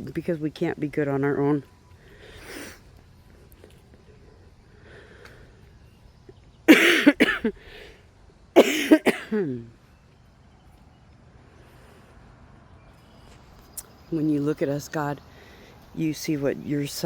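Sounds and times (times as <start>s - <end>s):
woman coughing: 6.7s - 7.5s, 8.6s - 9.7s.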